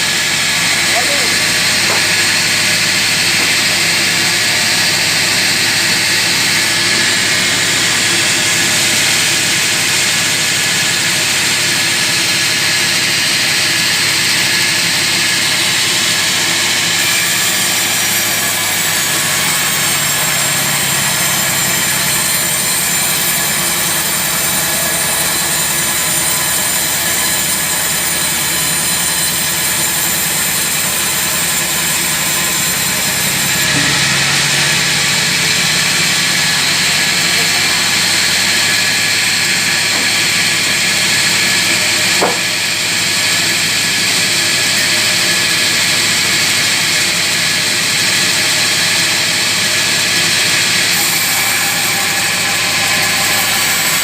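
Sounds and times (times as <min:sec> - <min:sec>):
sawmill saw cutting log: 0:00.0 - 0:54.0
low motor hum: 0:30.7 - 0:42.6.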